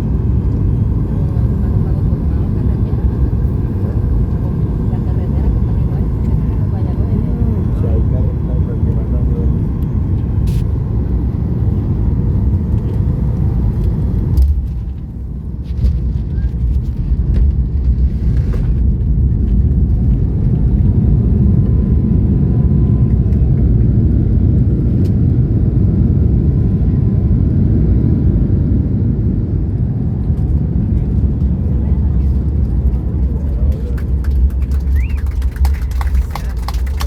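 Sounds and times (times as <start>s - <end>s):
airliner cabin rumble: 0.0s - 37.0s.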